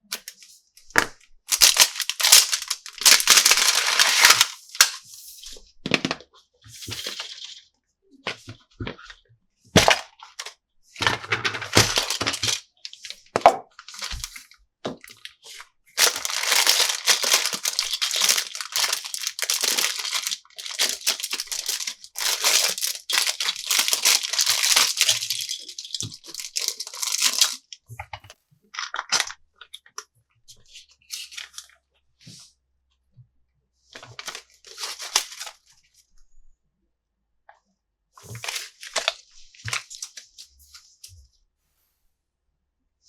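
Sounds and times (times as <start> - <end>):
plastic packaging crinkling: 1.5 - 5.1, 11.5 - 13.1, 13.8 - 14.4, 16.0 - 27.7, 34.2 - 35.6.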